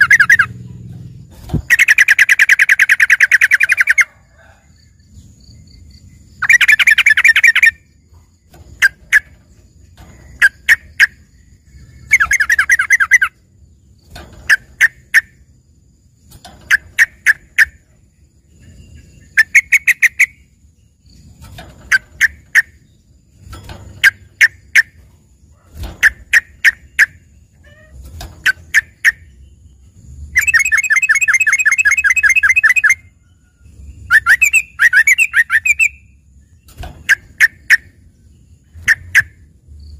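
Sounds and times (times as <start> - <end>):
bird singing sharp notes: 0.0 - 4.0, 26.0 - 33.1
bird chattering trills: 0.0 - 4.2, 5.2 - 15.5, 16.2 - 33.2, 34.0 - 36.3, 37.0 - 39.9.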